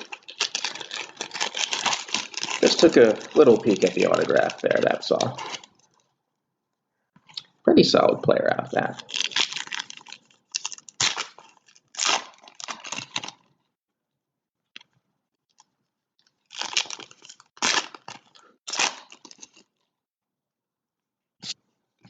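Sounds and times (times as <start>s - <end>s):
cards and foil wrappers crinkling: 0.0s - 6.1s, 8.8s - 13.6s, 15.5s - 19.9s.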